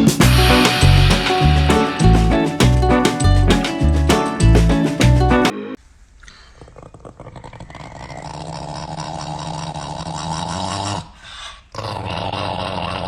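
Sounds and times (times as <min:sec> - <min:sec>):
dog growling: 0:06.6 - 0:13.0.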